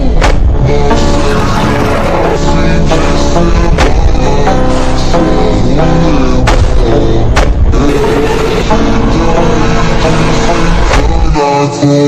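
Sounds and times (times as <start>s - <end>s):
music with heavy bass: 0.0s - 12.0s
sharp percussive hit: 6.4s - 8.7s.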